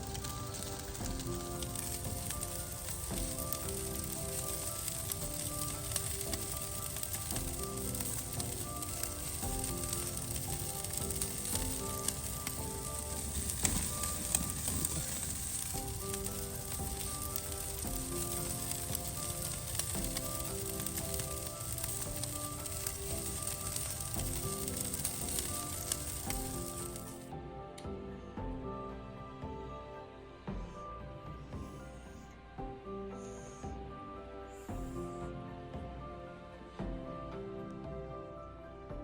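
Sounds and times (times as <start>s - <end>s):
food sizzling in a pan: 0.0s - 27.3s
soft melodic music: 0.0s - 39.0s.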